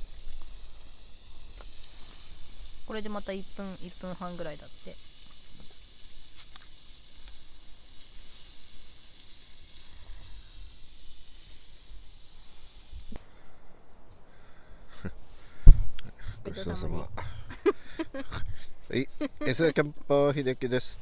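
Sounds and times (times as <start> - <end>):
gas stove burner hissing: 0.0 - 13.3.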